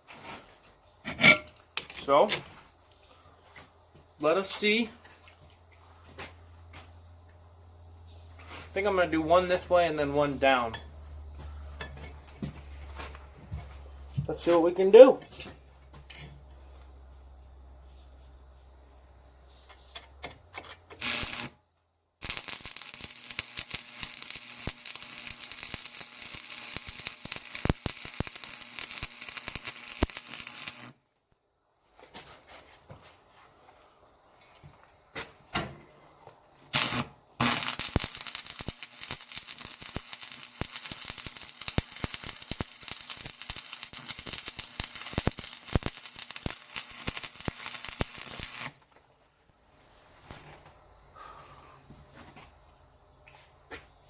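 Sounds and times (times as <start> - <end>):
arc welder crackling and popping: 20.9 - 21.6, 22.2 - 31.0, 36.7 - 49.0
welding arc striking burst: 21.0 - 21.6, 22.2 - 30.9, 36.7 - 48.8.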